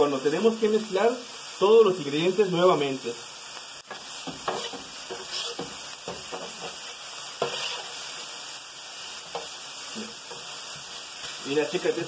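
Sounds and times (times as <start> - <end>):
meat and vegetables sizzling: 0.0 - 12.0
spatula scraping and tapping griddle: 3.8 - 8.3, 9.2 - 11.4.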